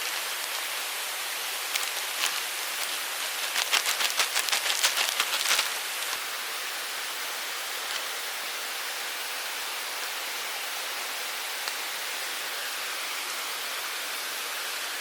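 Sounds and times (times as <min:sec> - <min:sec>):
mountain stream rushing: 0:00.0 - 0:15.0
quick crackling clicks: 0:01.7 - 0:06.2.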